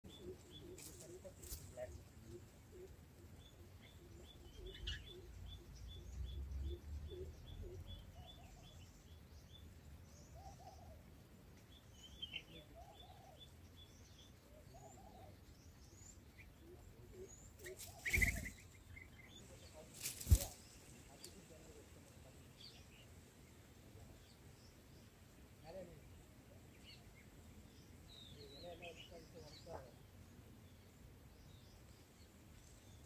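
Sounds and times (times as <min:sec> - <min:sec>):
nestlings chirping: 0:17.1 - 0:21.5.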